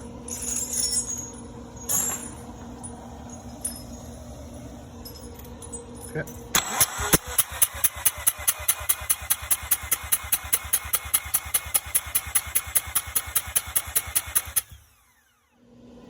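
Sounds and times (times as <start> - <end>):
engine cranking on starter: 6.6 - 15.6.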